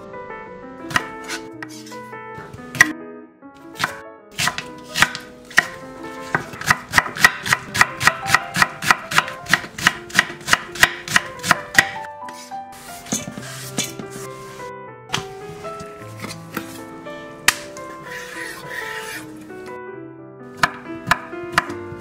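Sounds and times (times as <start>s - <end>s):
soft background music: 0.0s - 22.0s
knife chopping on wooden board: 0.9s - 1.9s, 2.7s - 2.9s, 3.8s - 12.5s, 20.6s - 21.8s.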